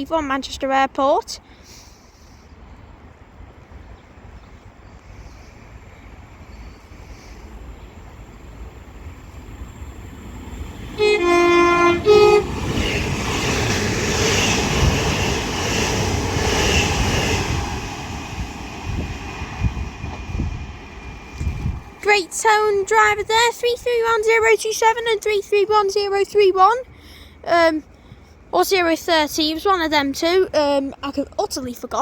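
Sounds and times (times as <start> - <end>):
passing train rumble and rail noise: 0.0 - 31.7
train horn two notes: 11.0 - 13.0.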